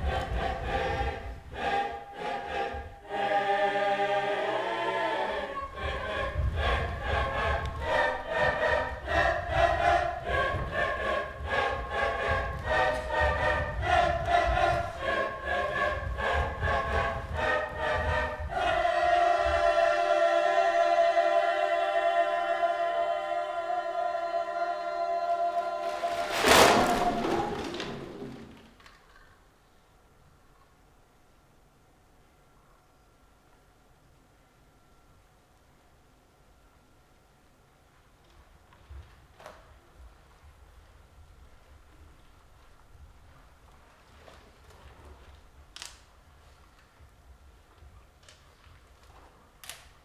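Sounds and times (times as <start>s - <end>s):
group singing a cappella: 0.0s - 28.6s.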